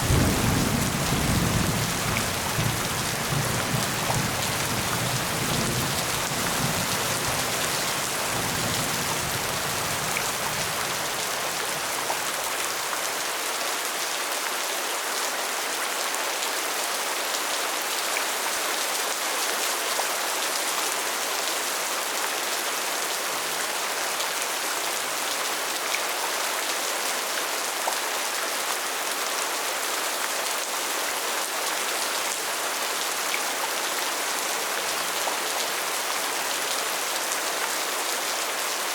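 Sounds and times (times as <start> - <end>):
heavy rain pattering: 0.0 - 12.8.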